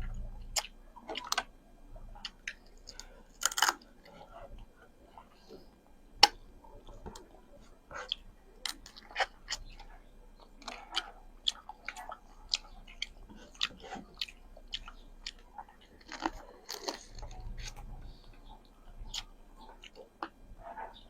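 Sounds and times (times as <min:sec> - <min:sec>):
chewing mouth clicks and smacks: 0:08.0 - 0:21.0.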